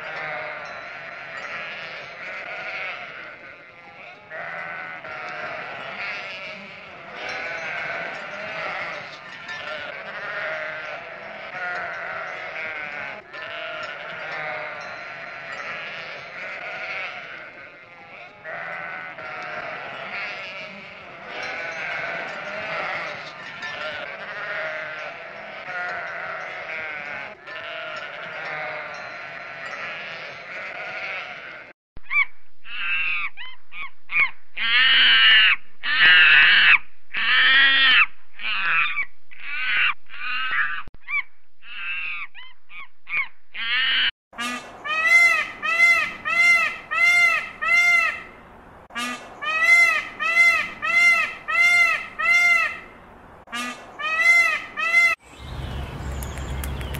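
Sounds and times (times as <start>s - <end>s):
sheep bleating: 0.0s - 31.8s.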